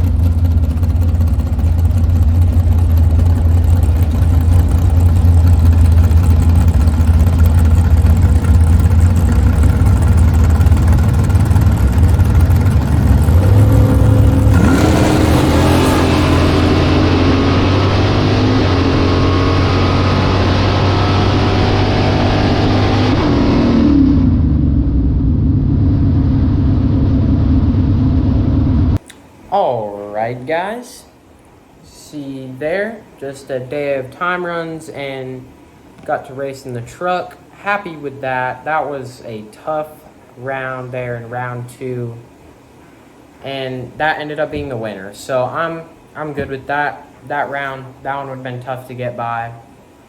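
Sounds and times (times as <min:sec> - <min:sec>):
drag car engine accelerating: 0:00.0 - 0:29.0.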